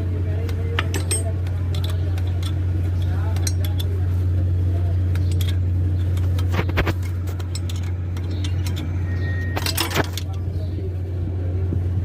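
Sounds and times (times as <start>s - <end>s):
low hum: 0.0s - 12.0s
metal tools clinking: 0.4s - 4.1s, 5.1s - 10.4s.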